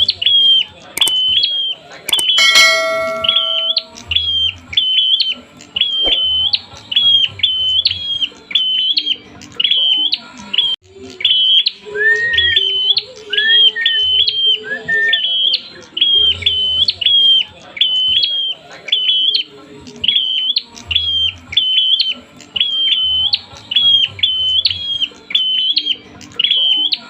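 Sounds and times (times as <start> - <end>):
bird high chirps: 0.0 - 27.0
lower gliding bird calls: 0.0 - 27.0.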